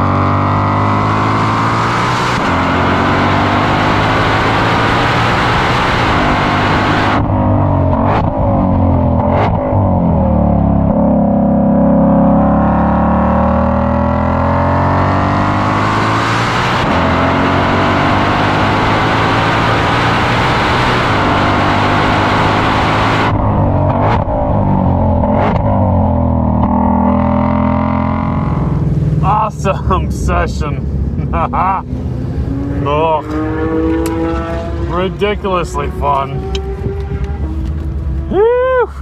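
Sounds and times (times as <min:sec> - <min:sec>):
car engine accelerating hard: 0:00.0 - 0:38.8
exhaust cracks: 0:21.8 - 0:31.6
gear change: 0:30.6 - 0:38.4.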